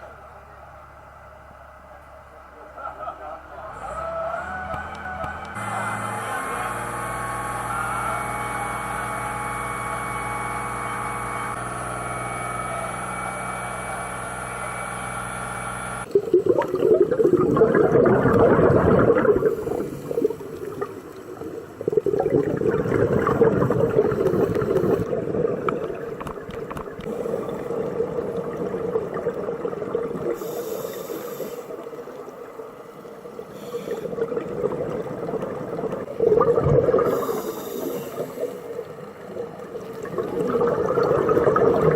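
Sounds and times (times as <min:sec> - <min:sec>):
steady hum with held tones: 0:00.0 - 0:41.9
underwater bubbles gurgling: 0:16.0 - 0:41.9
breathing through regulator: 0:18.4 - 0:20.6, 0:27.0 - 0:27.9, 0:30.2 - 0:32.0, 0:33.4 - 0:34.5, 0:36.8 - 0:38.9.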